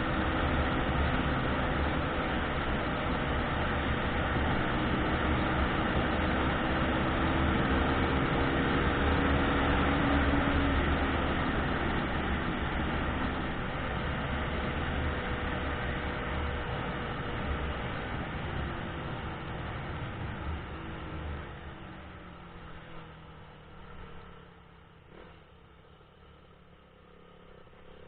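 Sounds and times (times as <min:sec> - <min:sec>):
car road and tyre noise: 0:00.0 - 0:28.0.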